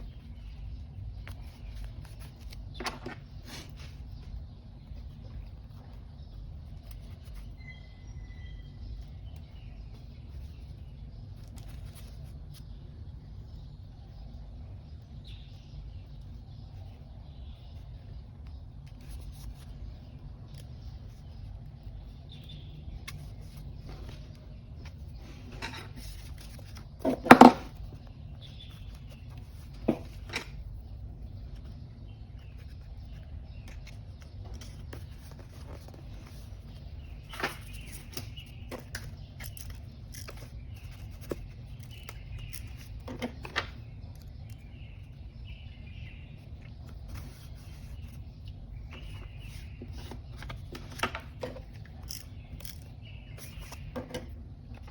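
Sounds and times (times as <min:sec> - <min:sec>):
paper rustling: 0:23.0 - 0:30.7, 0:31.4 - 0:43.8, 0:46.8 - 0:54.0.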